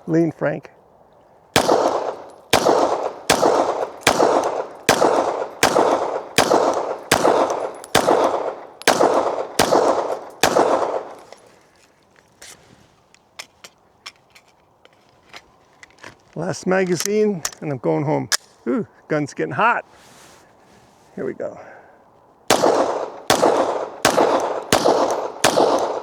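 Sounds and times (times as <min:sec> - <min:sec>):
pistol shots echoing: 0:01.6 - 0:11.4, 0:22.5 - 0:26.0.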